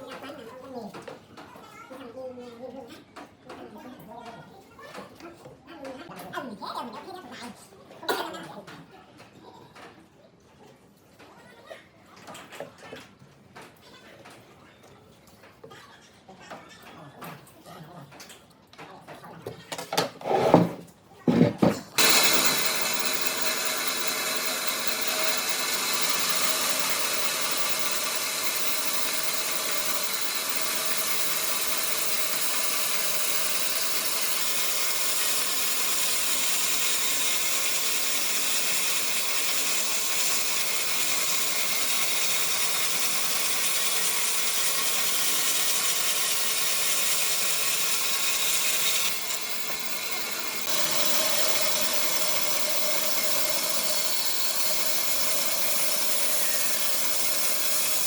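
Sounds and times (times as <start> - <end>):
power tool cutting wood: 20.2 - 58.0.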